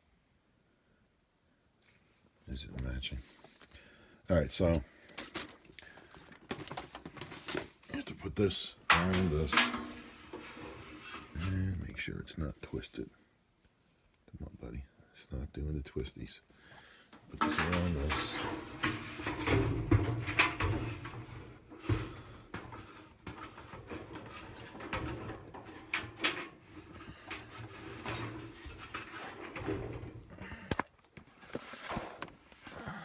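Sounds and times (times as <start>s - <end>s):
drive belt rubbing and shuffling: 6.5s - 11.8s, 17.2s - 30.4s.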